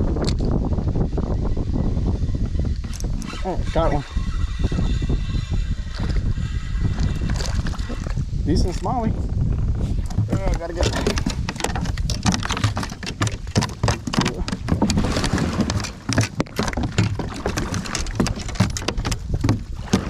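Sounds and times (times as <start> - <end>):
handling noise rumble: 9.1 - 20.0
fish splashing in water: 11.5 - 20.0.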